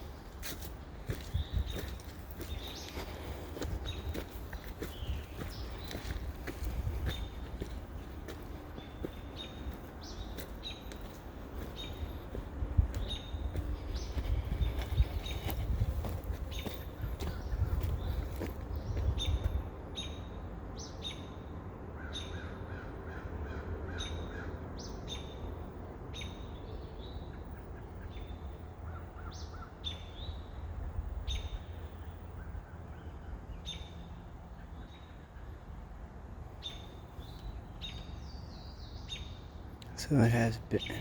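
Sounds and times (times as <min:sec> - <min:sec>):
birds chirping and calling: 0:00.4 - 0:21.4, 0:36.6 - 0:41.0.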